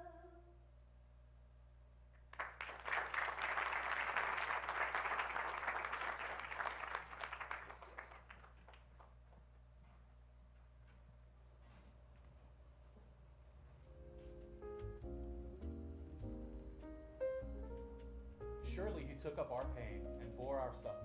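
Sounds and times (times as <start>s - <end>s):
audience applauding: 2.3s - 9.1s.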